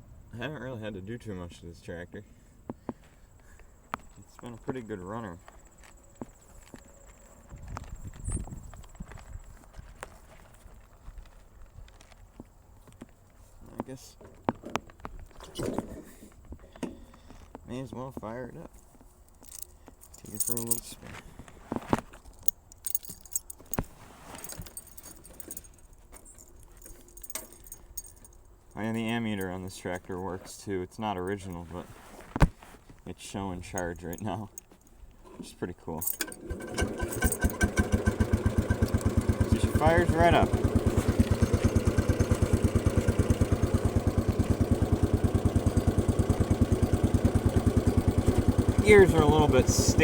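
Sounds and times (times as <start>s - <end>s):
keys jangling on a key ring: 19.3s - 20.9s, 22.2s - 23.8s, 24.4s - 29.2s
garden tractor engine idling: 36.1s - 50.0s.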